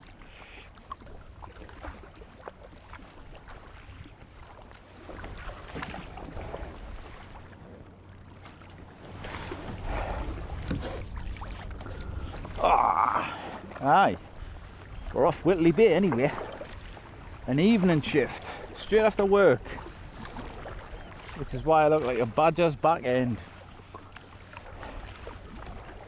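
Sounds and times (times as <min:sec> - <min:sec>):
water lapping around kayak: 0:00.0 - 0:26.0
wind buffeting microphone: 0:09.1 - 0:21.9.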